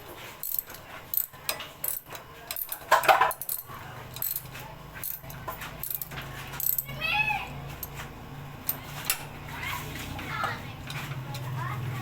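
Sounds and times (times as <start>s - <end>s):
metallic clicks of hand tools: 0.4s - 6.9s.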